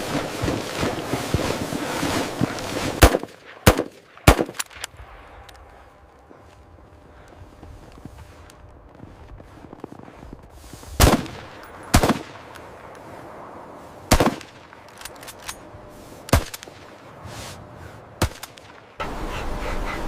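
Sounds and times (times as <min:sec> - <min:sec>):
steady rushing noise: 0:00.0 - 0:20.0
sharp loud cracks: 0:02.4 - 0:05.0, 0:11.0 - 0:12.6, 0:14.1 - 0:15.0, 0:16.3 - 0:16.9, 0:18.2 - 0:19.0.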